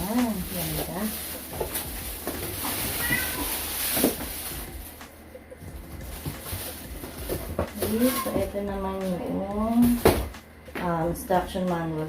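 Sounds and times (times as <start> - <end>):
cat meowing: 2.8 - 3.8.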